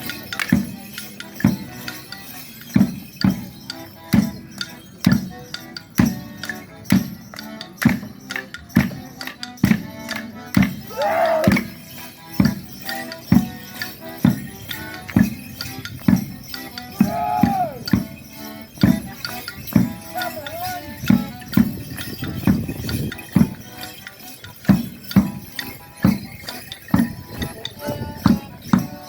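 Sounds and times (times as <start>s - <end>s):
folk dance tune: 0.0s - 29.0s
tambourine: 0.0s - 29.0s
loud whooping calls: 10.9s - 11.6s, 17.0s - 17.9s.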